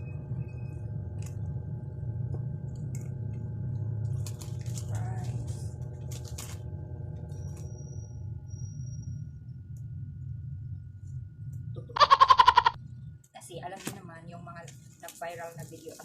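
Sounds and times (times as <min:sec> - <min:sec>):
steady low hum: 0:00.0 - 0:16.0
food packaging rustling: 0:04.1 - 0:06.7.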